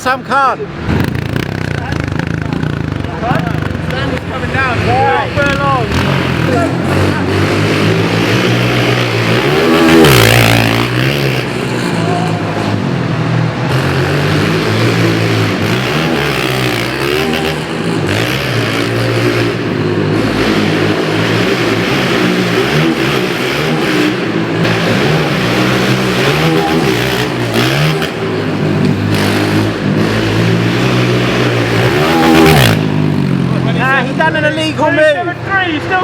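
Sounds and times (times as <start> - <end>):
pit bike engines revving: 0.0 - 36.0.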